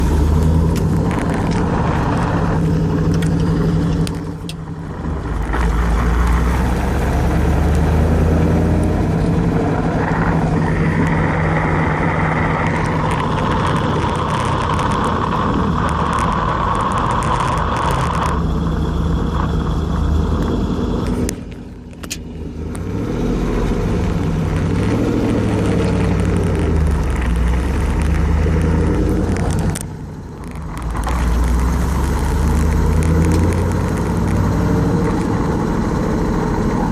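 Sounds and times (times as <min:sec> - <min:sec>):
car engine running: 0:00.0 - 0:36.9
drivetrain grinding: 0:00.0 - 0:36.9.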